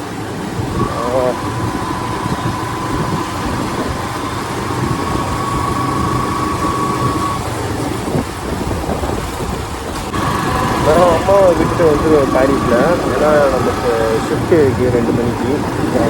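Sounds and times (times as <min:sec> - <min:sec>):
motorcycle engine: 0:00.0 - 0:16.0
wind and road noise: 0:00.0 - 0:16.0
thin high tone: 0:00.7 - 0:07.6, 0:10.1 - 0:16.0.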